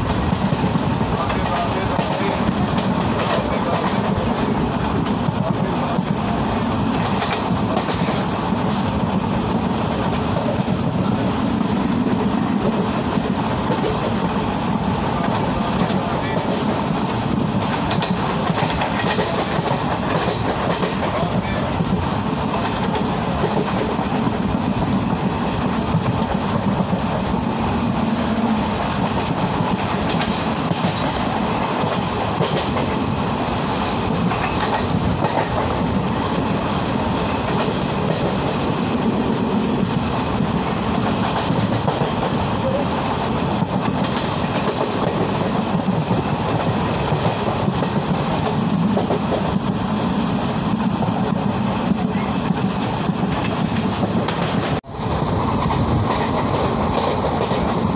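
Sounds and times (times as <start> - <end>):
train wheels rumbling on rails: 0.0 - 57.9
wheels clicking over rail joints: 7.0 - 9.1.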